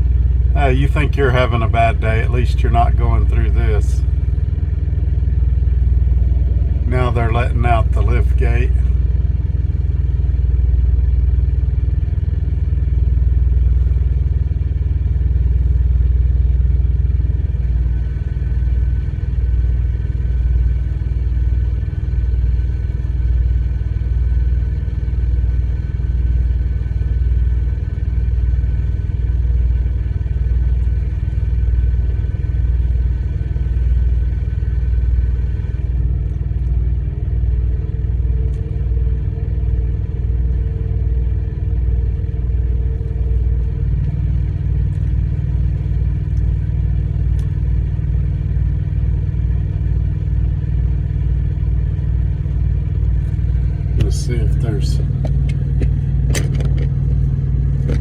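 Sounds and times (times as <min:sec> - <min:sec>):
thin steady whine: 0:00.0 - 0:58.0
vehicle engine idling: 0:00.0 - 0:58.0.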